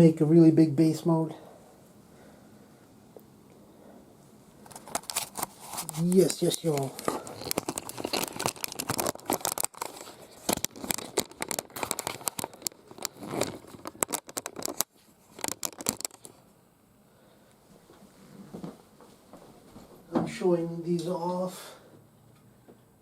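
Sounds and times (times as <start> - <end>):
plastic crinkling and rustling: 4.6 - 16.4.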